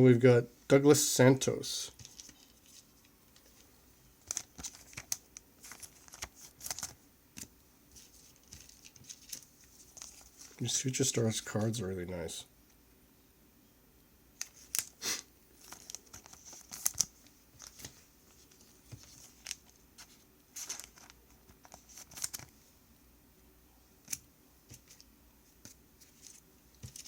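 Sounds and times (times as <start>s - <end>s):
plastic wrappers crinkling: 2.0s - 10.7s, 15.6s - 22.5s.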